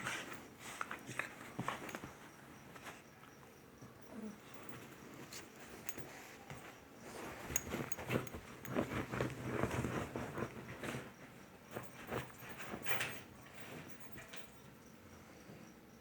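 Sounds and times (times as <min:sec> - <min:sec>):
small dogs making rough noises: 0:03.3 - 0:11.0.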